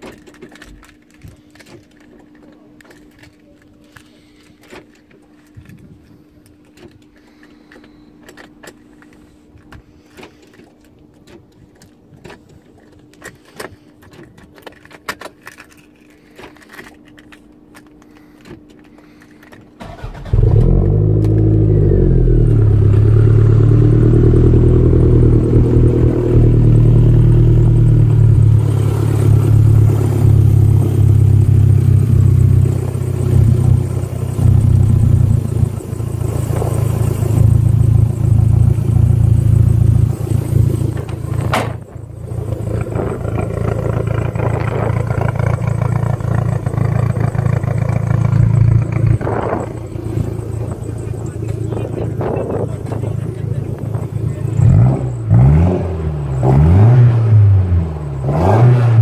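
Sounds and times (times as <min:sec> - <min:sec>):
light clicks and rattles: 0:00.0 - 0:19.8
car engine starting and idling: 0:00.0 - 0:59.0.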